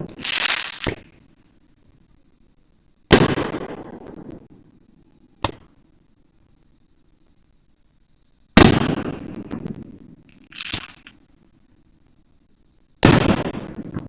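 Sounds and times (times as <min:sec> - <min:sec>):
fireworks booming: 0:00.0 - 0:01.3, 0:03.1 - 0:04.6, 0:08.6 - 0:11.2, 0:13.0 - 0:14.0.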